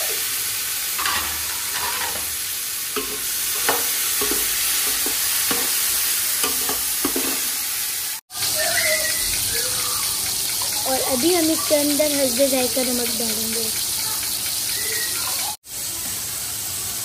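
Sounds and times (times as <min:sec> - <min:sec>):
tomatoes sizzling in hot oil: 0:00.0 - 0:17.0
metal ladle clinking and scraping: 0:01.0 - 0:02.4.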